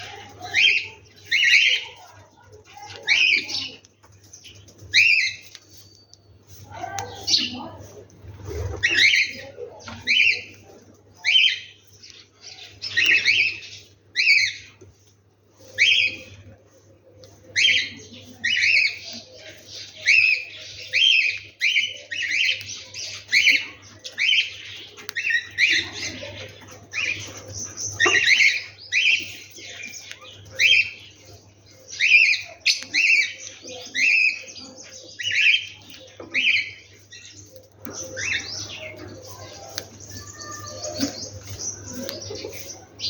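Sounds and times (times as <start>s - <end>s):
soft bird chirping: 8.8s - 43.0s.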